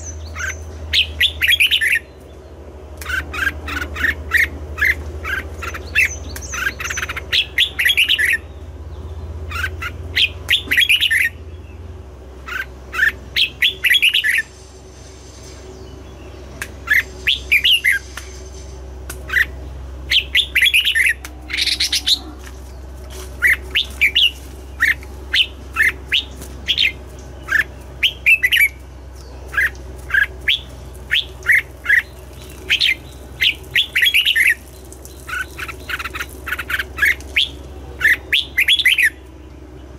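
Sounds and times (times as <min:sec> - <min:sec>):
steady low hum: 0:00.0 - 0:39.9
bird singing whistled notes: 0:05.6 - 0:08.6, 0:09.6 - 0:11.4, 0:12.5 - 0:14.5, 0:15.7 - 0:18.3, 0:19.3 - 0:22.2, 0:23.4 - 0:39.2.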